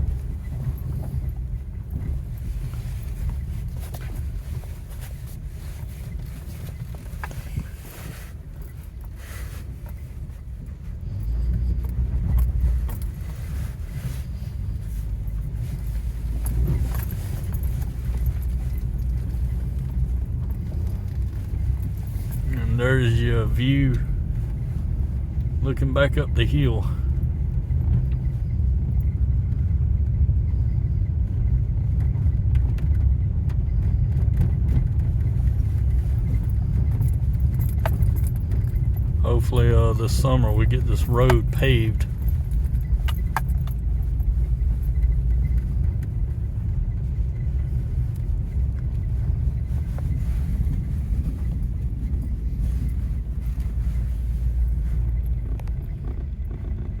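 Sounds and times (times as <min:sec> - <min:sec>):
faint clicks and rattles: 0:00.0 - 0:25.6, 0:27.1 - 0:57.0
vehicle rumbling on unpaved road: 0:00.0 - 0:57.0.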